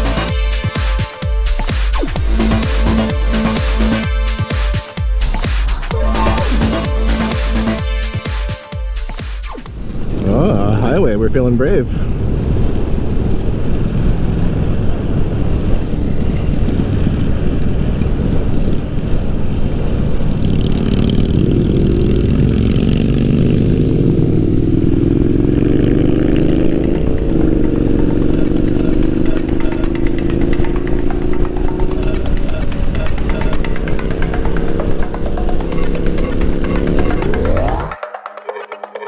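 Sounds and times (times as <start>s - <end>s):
wind rush on microphone: 11.6s - 23.2s.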